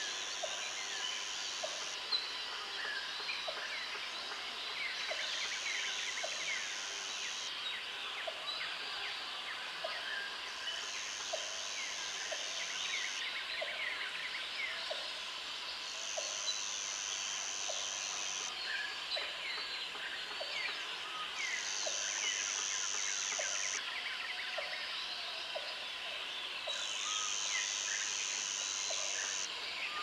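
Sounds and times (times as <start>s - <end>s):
insect buzzing: 16.1s - 18.5s, 21.5s - 23.8s, 26.9s - 29.5s.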